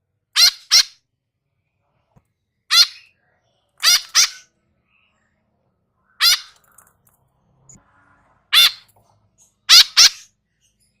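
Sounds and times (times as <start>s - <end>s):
young bird harsh calls: 0.4s - 1.0s, 2.7s - 3.1s, 3.8s - 4.5s, 6.2s - 6.6s, 8.5s - 8.9s, 9.7s - 10.3s.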